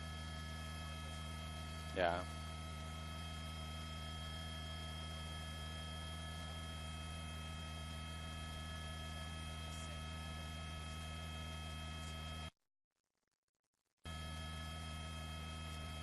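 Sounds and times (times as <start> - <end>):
electrical hum: 0.0 - 12.5, 14.1 - 16.0.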